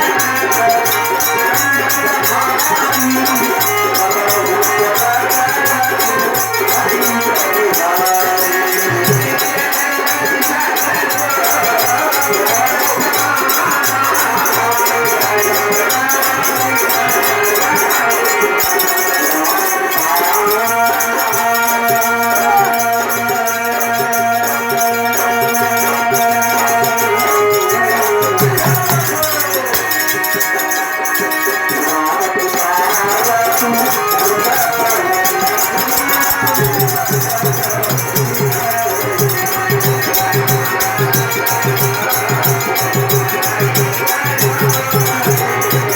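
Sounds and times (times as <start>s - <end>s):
instrumental music: 0.0s - 45.9s.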